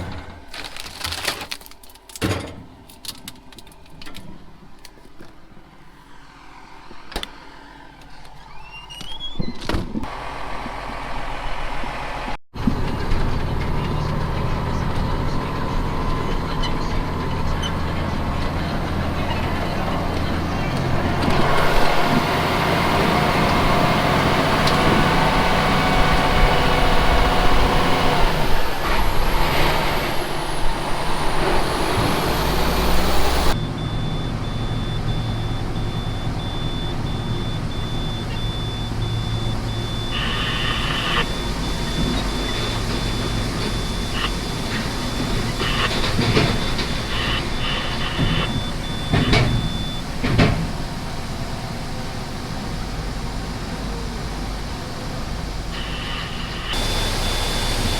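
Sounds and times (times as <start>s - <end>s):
truck engine running: 10.0s - 57.9s
short beeping bursts: 32.4s - 50.0s.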